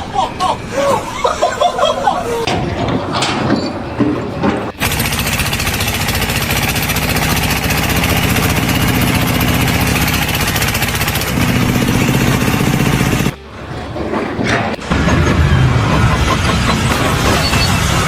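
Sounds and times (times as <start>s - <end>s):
engine running: 2.5s - 18.0s.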